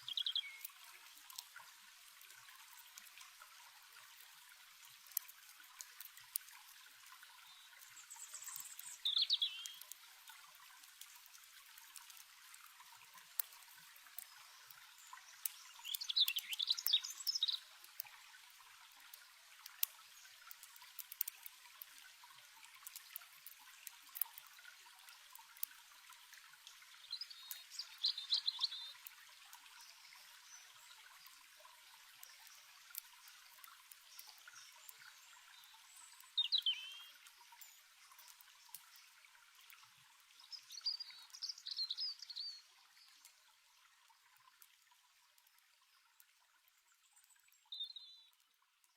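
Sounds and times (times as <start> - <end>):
bird singing: 0.0 - 0.7, 7.4 - 9.8, 15.6 - 17.7, 27.1 - 29.0, 36.4 - 37.1, 40.5 - 42.7, 47.7 - 48.3
stream water trickling: 0.0 - 48.9
campfire crackling: 0.6 - 30.3, 31.0 - 36.4.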